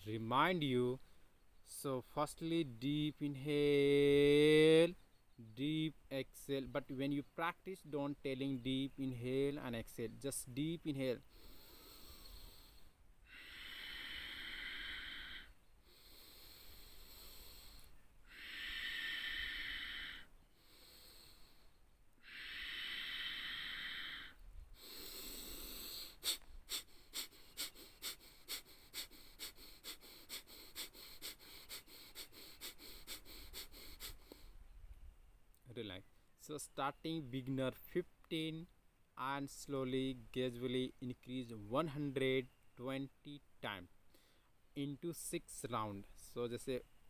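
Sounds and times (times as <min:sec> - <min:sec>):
person breathing through the nose: 0:11.2 - 0:34.6, 0:44.1 - 0:44.5
sharp forceful exhalations: 0:11.3 - 0:34.6.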